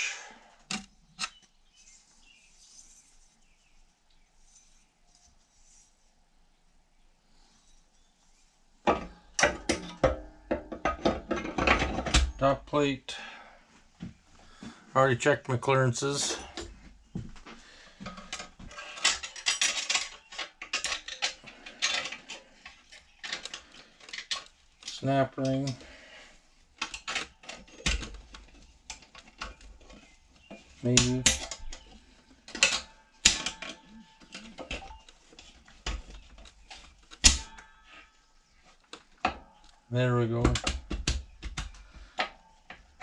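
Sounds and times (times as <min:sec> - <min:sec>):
metal parts clinking and scraping: 0:18.0 - 0:25.8, 0:26.8 - 0:39.8.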